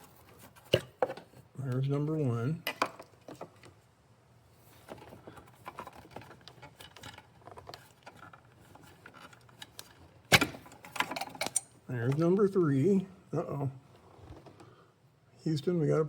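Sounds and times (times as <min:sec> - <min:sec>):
plastic and rubber rustling: 0:00.0 - 0:01.8, 0:04.5 - 0:14.8.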